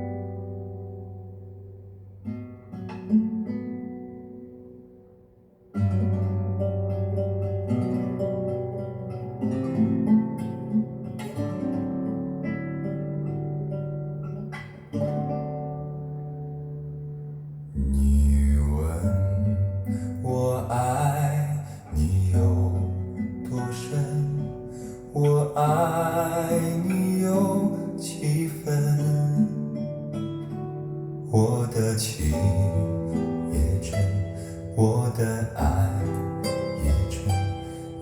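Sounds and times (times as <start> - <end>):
acoustic guitar ballad: 0.0 - 38.0
slow ballad with deep bass: 17.5 - 29.6, 31.3 - 38.0.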